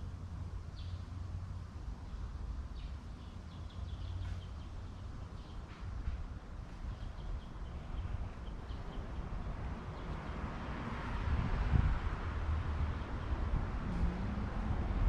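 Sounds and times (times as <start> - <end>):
small birds chirping: 0.6 - 1.2, 2.0 - 6.1, 6.7 - 10.4.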